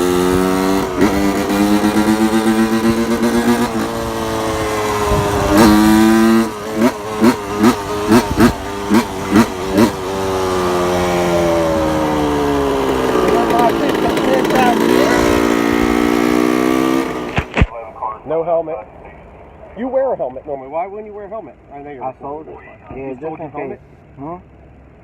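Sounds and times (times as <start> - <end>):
two-stroke engine revving: 0.0 - 17.7.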